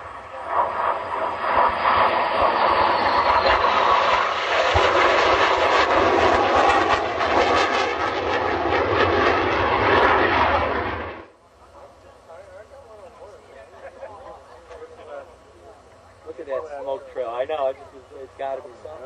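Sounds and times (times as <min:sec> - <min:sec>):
jet flying past: 0:00.0 - 0:12.0
high jet whine: 0:00.0 - 0:19.0.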